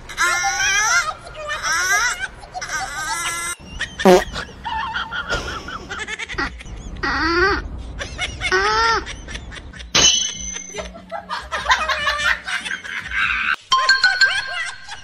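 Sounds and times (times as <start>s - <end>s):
snickering laughter: 3.8s - 7.0s, 10.7s - 13.6s
pitch-bending call: 4.1s - 4.4s.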